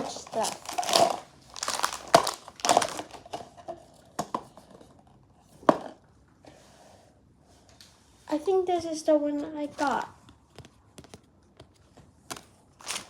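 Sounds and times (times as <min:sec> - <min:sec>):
packaging rustling and crinkling: 0:00.0 - 0:04.9, 0:12.3 - 0:13.0.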